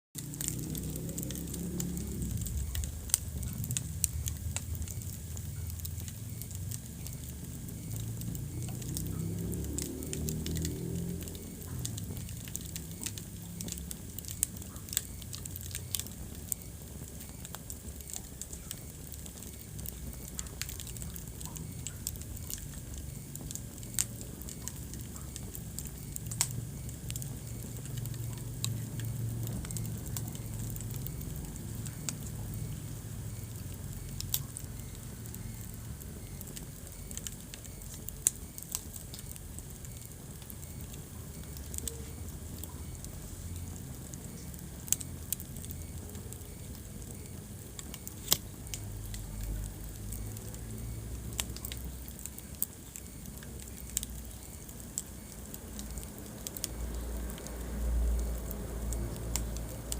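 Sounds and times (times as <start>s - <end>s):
wood fire crackling: 0.2s - 59.9s.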